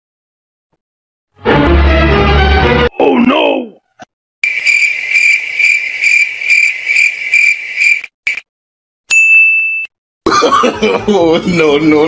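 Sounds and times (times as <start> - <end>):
cricket chirp trill: 4.4 - 8.4.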